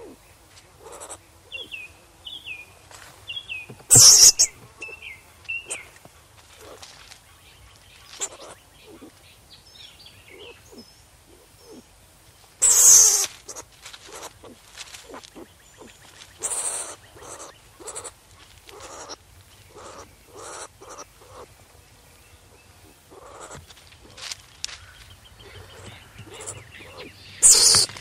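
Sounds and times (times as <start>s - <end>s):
farm animals bleating: 0.8s - 1.7s, 12.6s - 21.5s, 23.1s - 24.3s, 25.4s - 28.0s.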